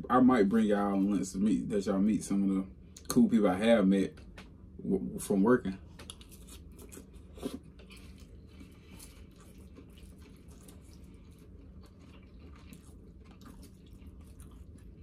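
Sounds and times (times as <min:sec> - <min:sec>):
chewing lettuce: 0:05.9 - 0:15.0.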